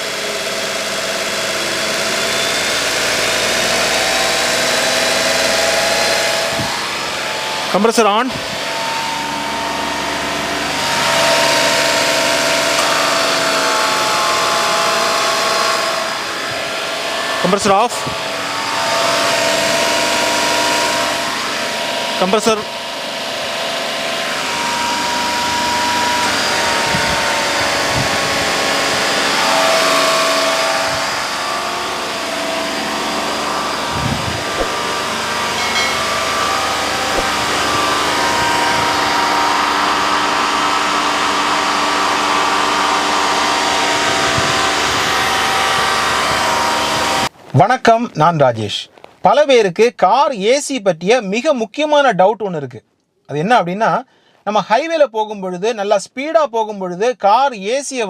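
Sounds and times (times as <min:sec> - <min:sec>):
air-conditioning compressor: 0:00.0 - 0:47.4
car engine at raised revs: 0:00.0 - 0:47.6.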